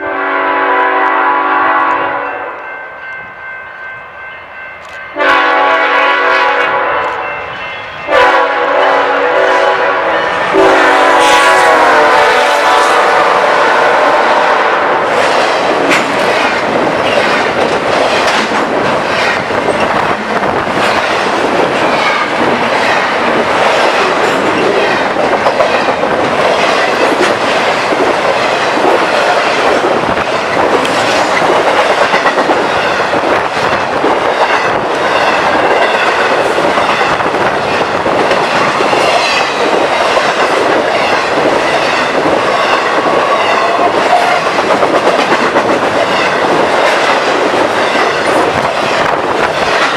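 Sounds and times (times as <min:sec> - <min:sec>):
train wheels rumbling: 0:00.0 - 0:49.9
clickety-clack over rail joints: 0:15.0 - 0:49.9.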